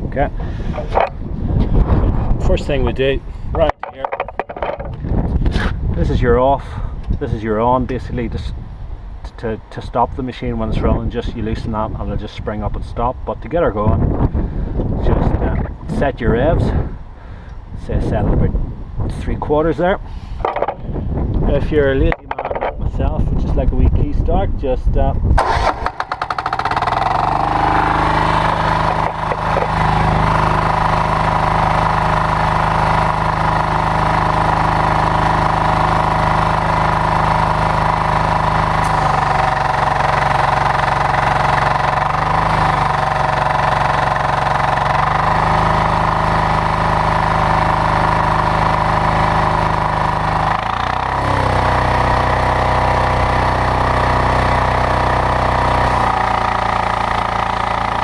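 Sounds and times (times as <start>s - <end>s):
diesel pressure washer engine running: 25.4s - 58.0s.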